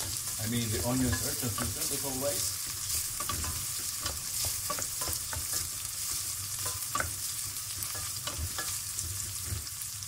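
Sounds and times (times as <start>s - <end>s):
onions sizzling in hot oil: 0.0s - 10.0s
wooden spatula tapping pot: 1.0s - 2.0s, 3.2s - 9.7s.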